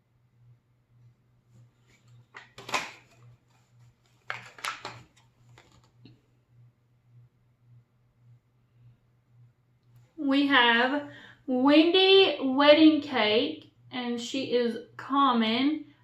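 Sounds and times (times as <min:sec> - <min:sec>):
low steady hum: 0:00.0 - 0:16.0
plastic packaging crinkling: 0:01.9 - 0:06.0.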